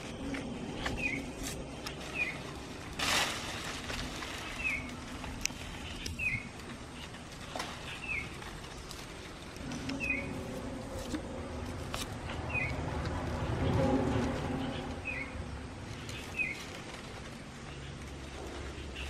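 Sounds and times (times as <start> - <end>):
bird chirping: 0.0 - 2.6, 5.8 - 9.0, 9.6 - 11.0, 14.4 - 16.8.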